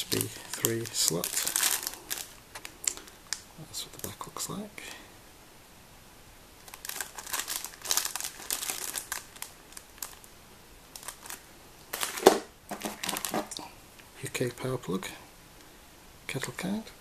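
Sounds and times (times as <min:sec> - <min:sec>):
plastic packaging crinkling: 0:00.0 - 0:03.4, 0:06.6 - 0:10.3, 0:10.9 - 0:13.6.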